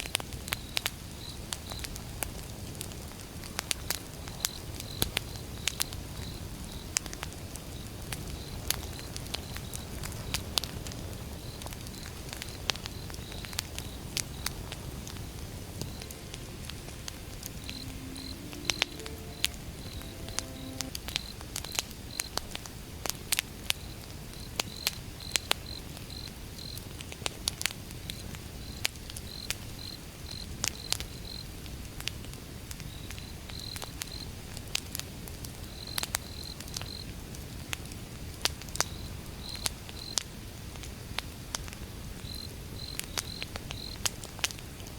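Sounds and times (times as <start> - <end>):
crickets chirping: 11.4 - 21.3.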